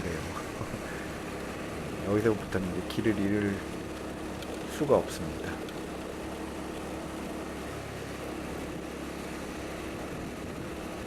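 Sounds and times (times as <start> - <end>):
road noise: 0.0 - 11.0
wind noise: 9.9 - 11.0.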